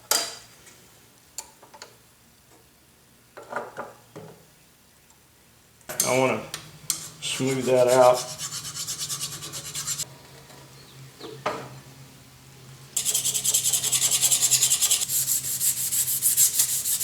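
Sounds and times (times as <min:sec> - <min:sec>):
rubbing strokes on metal: 0:07.0 - 0:10.0, 0:13.0 - 0:17.0.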